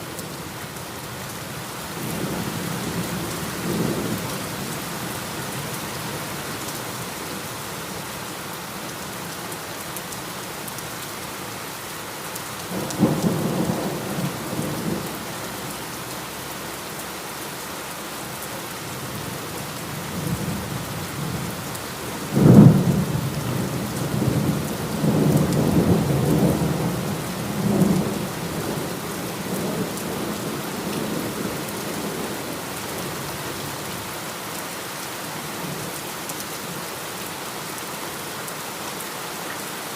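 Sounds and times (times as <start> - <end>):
heavy rain: 0.0 - 39.9
rolling thunder: 22.3 - 28.9.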